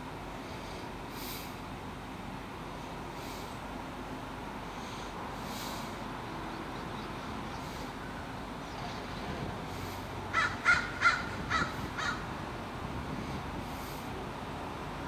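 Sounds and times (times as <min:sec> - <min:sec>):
background hum: 0:00.0 - 0:15.0
bird calling: 0:10.3 - 0:12.3.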